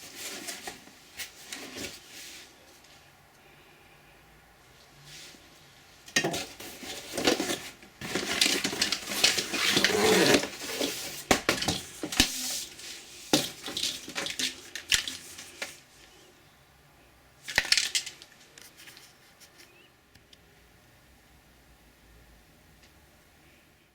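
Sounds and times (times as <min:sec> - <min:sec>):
plastic parts clattering: 0:06.1 - 0:15.8, 0:17.4 - 0:19.1
packaging rustling: 0:06.2 - 0:15.8.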